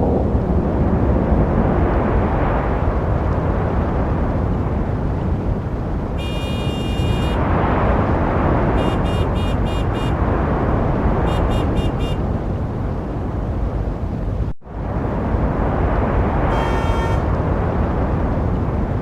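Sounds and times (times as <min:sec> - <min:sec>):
road traffic passing cars: 0:00.0 - 0:19.0
car horn honking: 0:06.2 - 0:07.4, 0:08.8 - 0:10.2, 0:11.2 - 0:12.2, 0:16.5 - 0:17.3.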